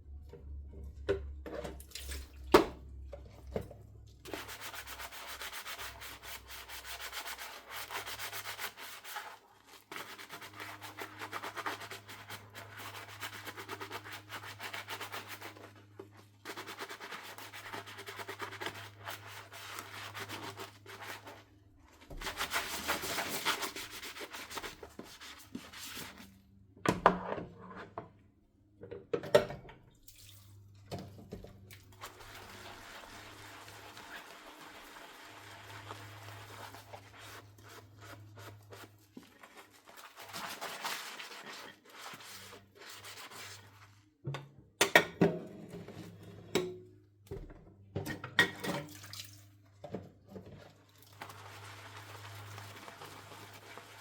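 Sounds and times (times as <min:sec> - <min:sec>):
sponge scrubbing a dish: 0:03.2 - 0:26.4, 0:31.9 - 0:44.2, 0:50.3 - 0:54.0.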